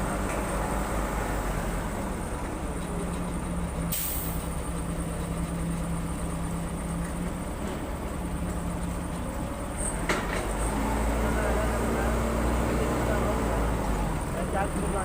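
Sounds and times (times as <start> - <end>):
diesel engine running: 0.0 - 15.0
short sharp hiss: 3.9 - 4.4.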